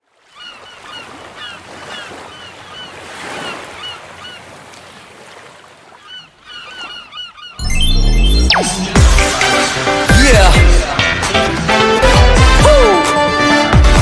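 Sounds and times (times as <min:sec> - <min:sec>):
surf washing on shore: 0:00.2 - 0:07.0
gulls calling: 0:00.2 - 0:13.7.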